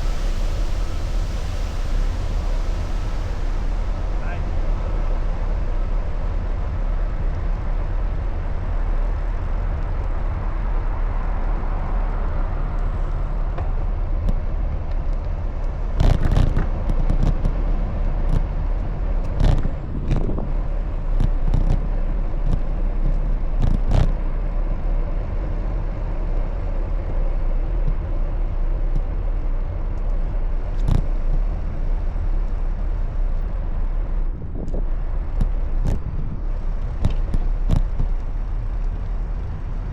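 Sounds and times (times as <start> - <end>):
road and traffic noise: 0.0 - 39.9
wind buffeting microphone: 0.0 - 39.9
bicycle knocks and rattles: 34.6 - 39.6.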